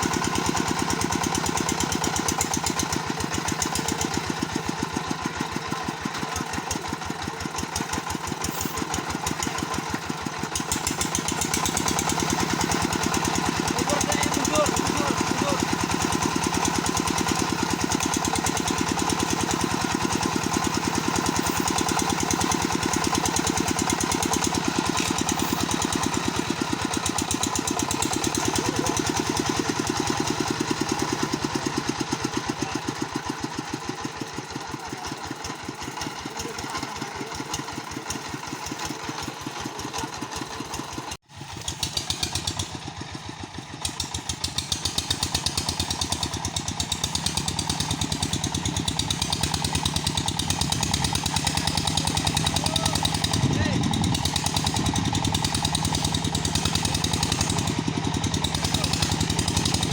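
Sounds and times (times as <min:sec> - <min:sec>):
sawmill engine knocking: 0:00.0 - 0:59.9.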